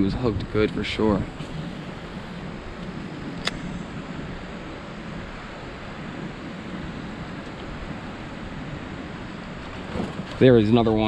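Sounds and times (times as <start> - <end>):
wind buffeting microphone: 0.0 - 11.0
sharp click: 3.4 - 3.8.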